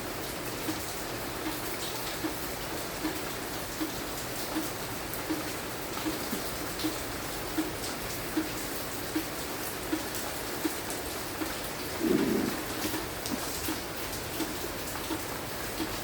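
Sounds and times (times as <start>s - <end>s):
light rain falling: 0.0s - 16.0s.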